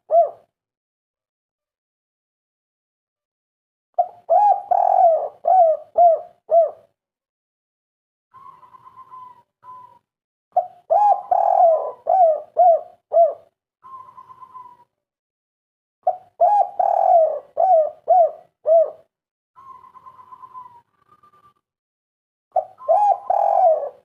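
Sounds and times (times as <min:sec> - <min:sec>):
dove cooing: 0:00.0 - 0:00.5, 0:04.0 - 0:06.9, 0:08.4 - 0:10.0, 0:10.6 - 0:14.9, 0:16.0 - 0:21.6, 0:22.5 - 0:24.0.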